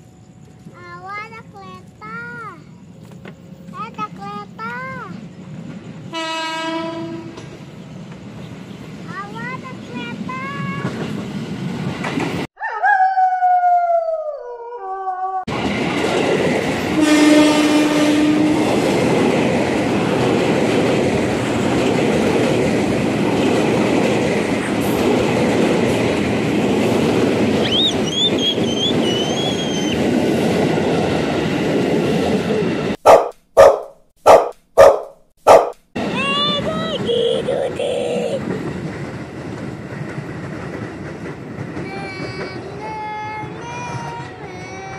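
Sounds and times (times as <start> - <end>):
train rumble and wheel clatter: 0.0 - 12.5, 15.5 - 33.0, 36.0 - 44.9
train horn blast: 6.1 - 7.5, 17.0 - 18.8
wheel squeals: 27.6 - 30.0
short edited bursts: 33.0 - 37.9.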